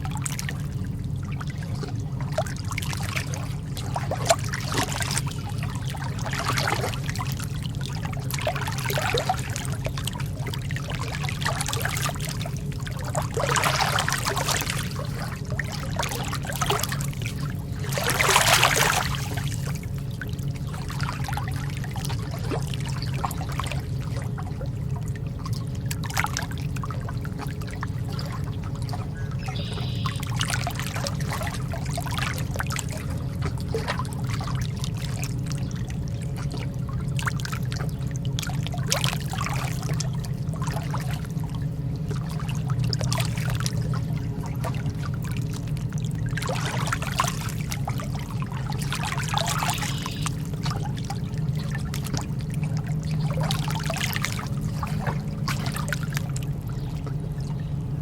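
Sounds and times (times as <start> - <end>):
lake water lapping: 0.0 - 58.0
low rumble: 0.0 - 58.0
water splashes: 0.0 - 58.0.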